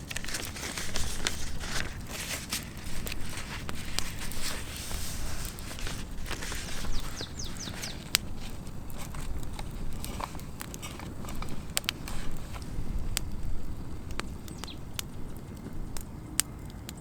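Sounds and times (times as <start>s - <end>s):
sharp clicks and snaps: 0.0s - 17.0s
bird chirping: 6.3s - 10.4s, 12.5s - 16.4s.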